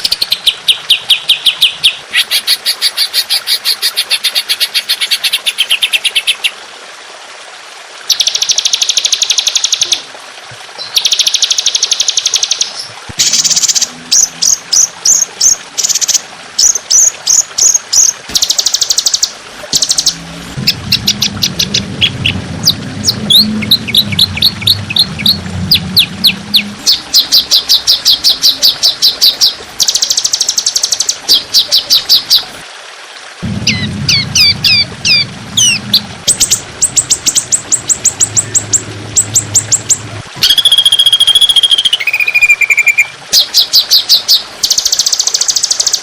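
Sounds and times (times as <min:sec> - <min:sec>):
songbird rapid trills: 0:10.8 - 0:32.5
songbird quick down-slurred notes: 0:33.4 - 0:40.6.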